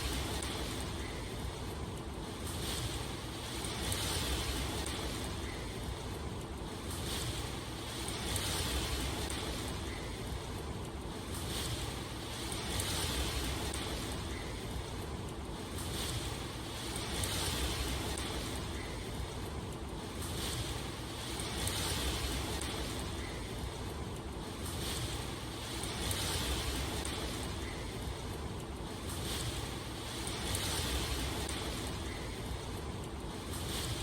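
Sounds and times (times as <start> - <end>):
rushing water with low rumble: 0.0 - 34.0.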